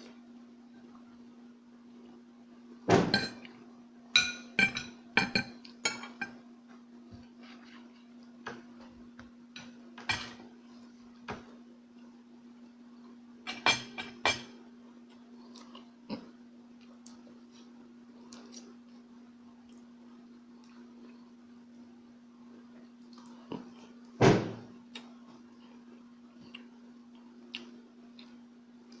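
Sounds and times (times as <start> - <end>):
steady low hum: 0.0 - 29.0
cutlery clinking on a plate: 4.2 - 6.4, 9.6 - 10.4.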